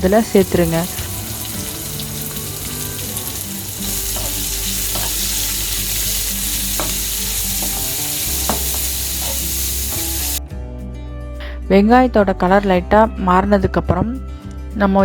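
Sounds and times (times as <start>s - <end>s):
onions sizzling in oil: 0.0s - 10.4s
spatula scraping pan: 3.8s - 10.2s.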